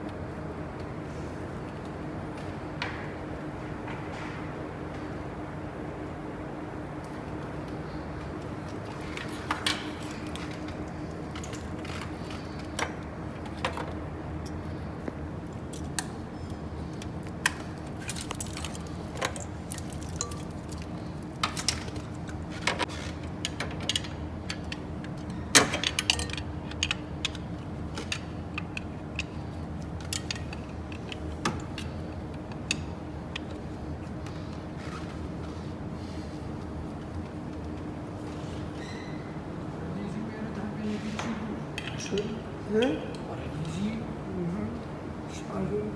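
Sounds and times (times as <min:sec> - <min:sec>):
steady background hum: 0:00.0 - 0:45.9
metal tools clinking: 0:18.0 - 0:22.0, 0:23.0 - 0:27.4.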